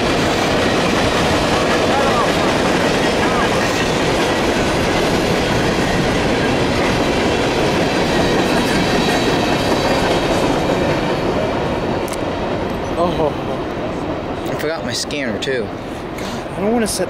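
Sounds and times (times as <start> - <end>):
steel wheels running on rails: 0.0 - 17.0.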